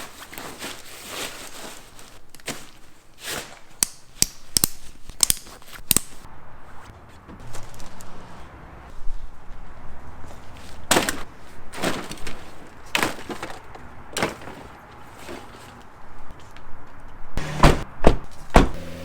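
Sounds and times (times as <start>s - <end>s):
sharp knocks and clunks: 17.4s - 18.9s.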